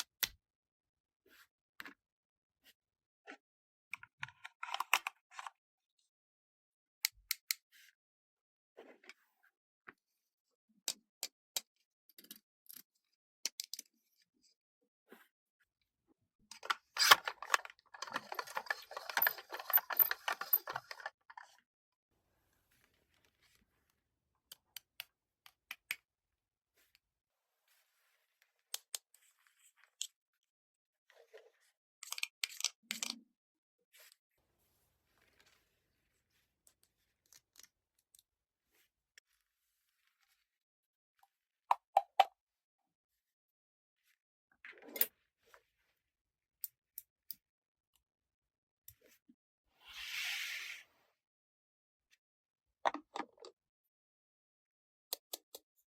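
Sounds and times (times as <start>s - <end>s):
plastic modelling tools clicking: 16.5s - 21.6s.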